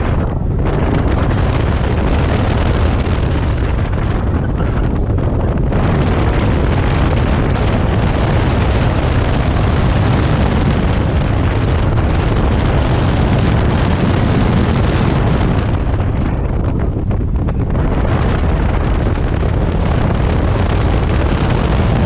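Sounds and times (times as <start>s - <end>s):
wind and road noise: 0.0s - 22.0s.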